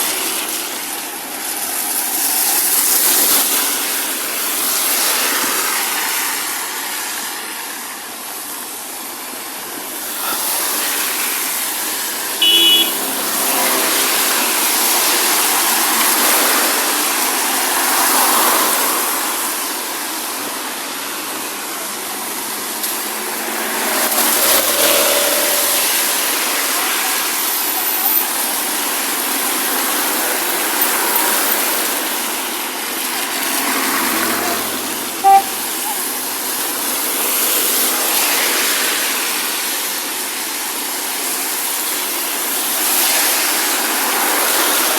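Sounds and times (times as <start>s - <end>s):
traffic on wet road: 0.0s - 44.9s
brief high tone: 12.4s - 13.2s, 24.1s - 27.2s, 35.2s - 36.2s.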